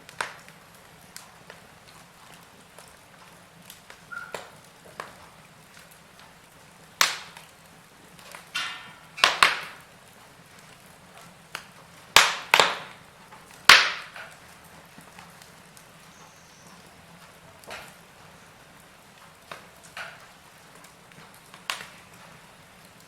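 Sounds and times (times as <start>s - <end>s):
fire popping: 0.0s - 23.0s
wood fire crackling: 0.0s - 23.0s.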